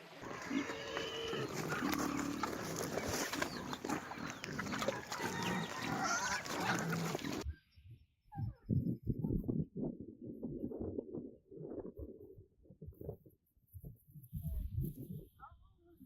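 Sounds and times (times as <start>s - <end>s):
farm animals grunting and crying: 0.0s - 7.5s.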